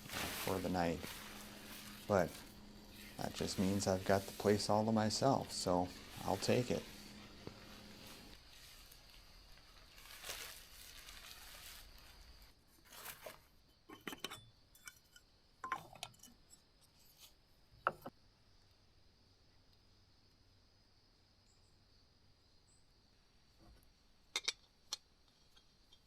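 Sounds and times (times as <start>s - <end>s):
rustling of gear: 0.0s - 13.4s.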